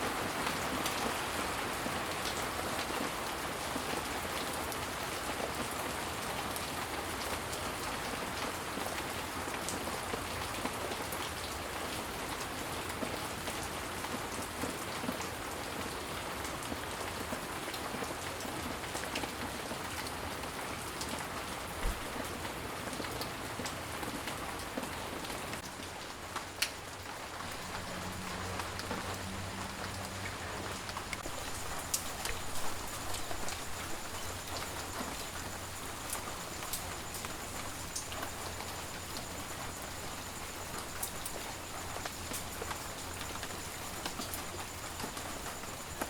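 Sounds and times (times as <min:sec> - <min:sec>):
steady rain hiss: 0:00.0 - 0:46.0.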